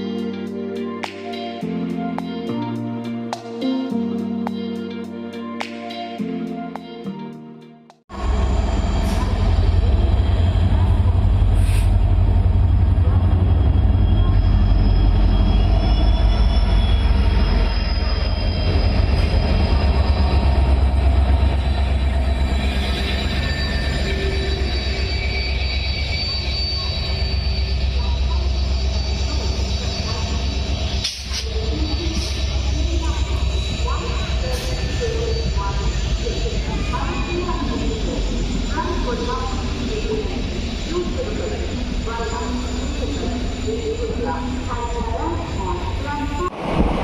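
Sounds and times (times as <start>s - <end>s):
train wheels rumbling on rails: 8.1s - 47.0s
high-pitched wheel squealing: 11.6s - 46.5s.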